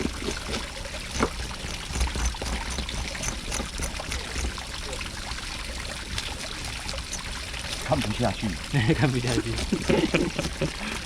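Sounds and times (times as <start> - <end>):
small clicks and knocks: 0.0 - 4.6
water running and splashing: 0.0 - 11.0.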